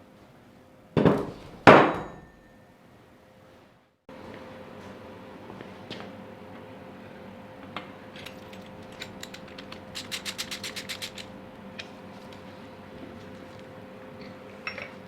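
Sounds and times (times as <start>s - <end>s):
steady low hum: 4.1s - 15.0s
ratchet wrench clicking: 8.9s - 11.3s.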